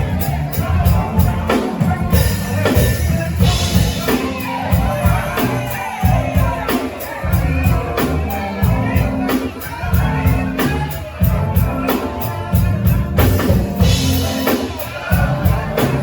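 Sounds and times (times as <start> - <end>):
band music: 0.0 - 16.0
bass line: 0.0 - 16.0
steady drum beat: 0.0 - 16.0.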